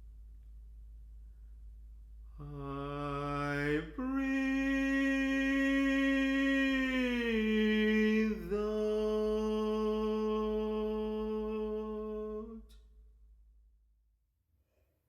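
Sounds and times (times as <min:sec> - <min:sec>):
person singing wordless notes: 0:02.4 - 0:12.8.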